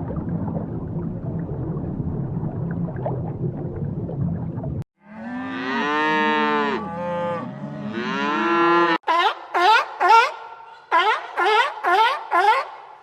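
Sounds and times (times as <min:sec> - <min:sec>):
low rumbling noise: 0:00.0 - 0:04.8
cow mooing: 0:05.0 - 0:09.0.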